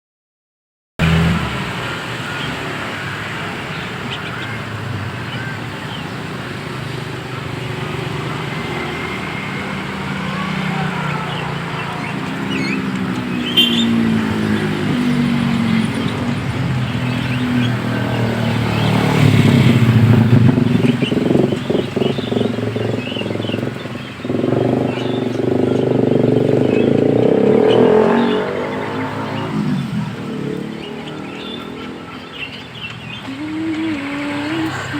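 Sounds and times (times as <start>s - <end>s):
road traffic passing: 1.0s - 34.9s
small birds chirping: 1.9s - 34.9s.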